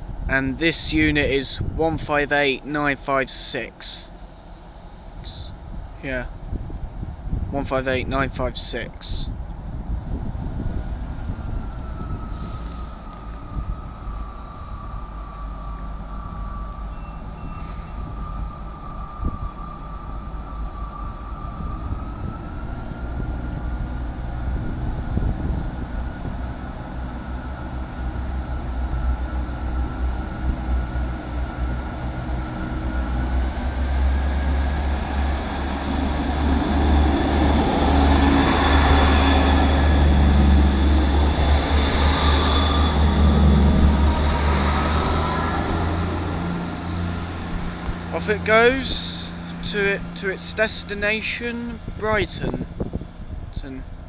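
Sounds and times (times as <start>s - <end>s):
diesel train engines running: 0.0s - 54.0s
steady engine whine: 0.0s - 54.0s
deep rumble: 20.7s - 54.0s.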